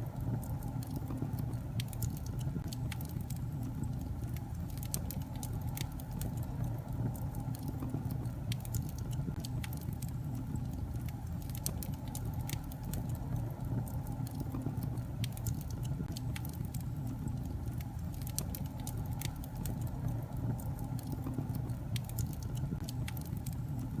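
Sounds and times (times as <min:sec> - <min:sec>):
fire rumbling: 0:00.0 - 0:24.0
logs crackling and popping: 0:00.0 - 0:24.0.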